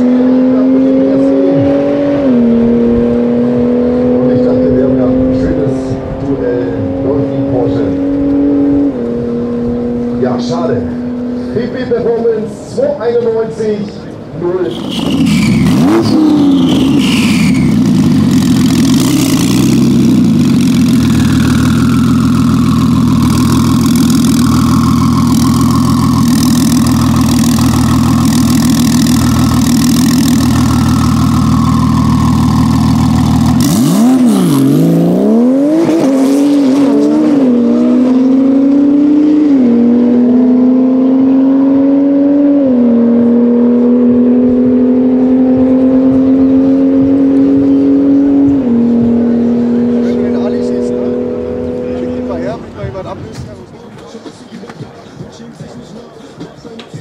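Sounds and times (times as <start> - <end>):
car engine full-throttle acceleration: 0.0 - 53.8
car engine idling: 14.0 - 35.2.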